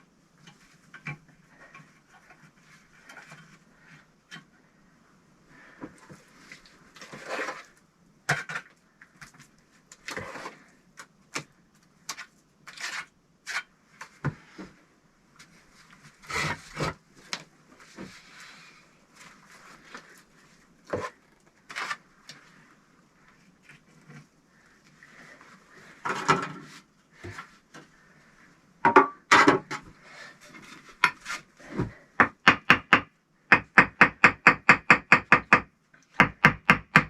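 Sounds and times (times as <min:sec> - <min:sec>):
bricks and tools knocking: 0:32.2 - 0:37.0.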